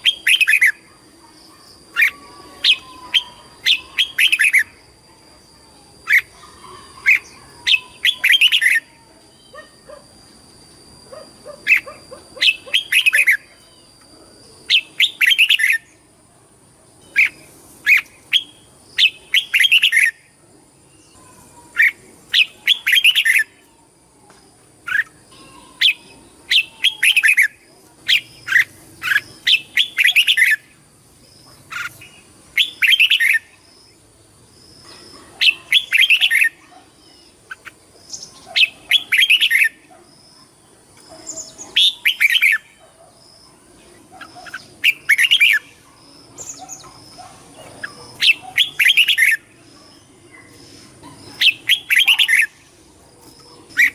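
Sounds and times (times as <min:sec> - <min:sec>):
bird chirping song: 0:00.0 - 0:16.1, 0:17.0 - 0:53.9.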